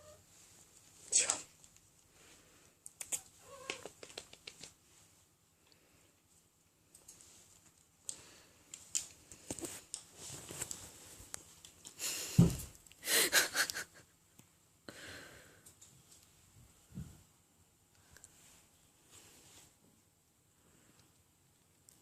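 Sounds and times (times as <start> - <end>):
thump: 12.4 - 12.7.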